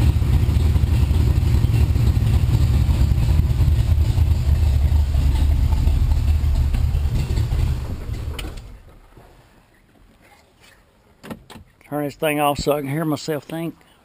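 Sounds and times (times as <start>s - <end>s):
car engine idling lumpily: 0.0s - 10.4s.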